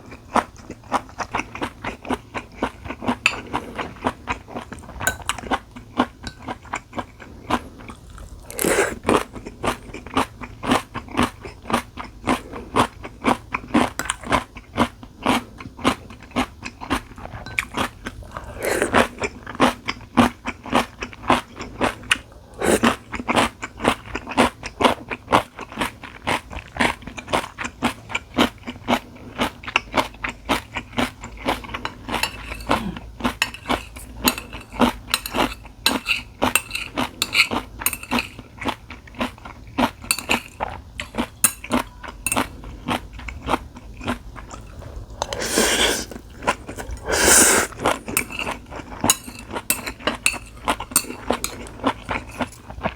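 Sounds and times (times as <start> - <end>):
person chewing: 0.0 - 52.9
cutlery clinking on dishes: 3.2 - 3.6, 5.0 - 5.5, 17.4 - 17.8, 31.8 - 38.4, 40.0 - 42.5, 48.1 - 52.7.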